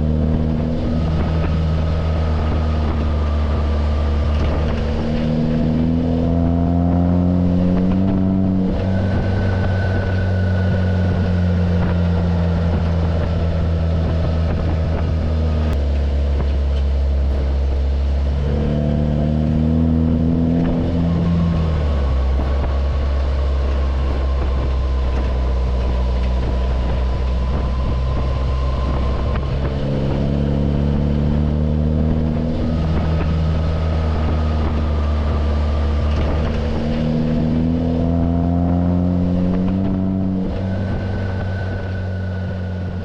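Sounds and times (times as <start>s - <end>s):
car engine accelerating: 0.0s - 43.0s
steady low drone: 0.0s - 43.0s.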